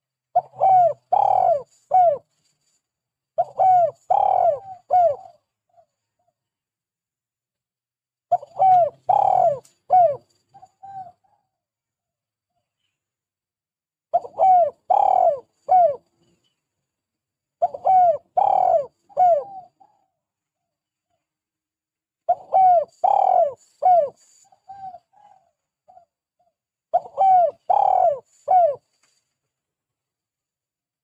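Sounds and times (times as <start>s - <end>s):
dove cooing: 0.3s - 2.3s, 3.4s - 5.9s, 8.3s - 11.5s, 14.1s - 16.0s, 17.6s - 20.2s, 22.3s - 28.9s.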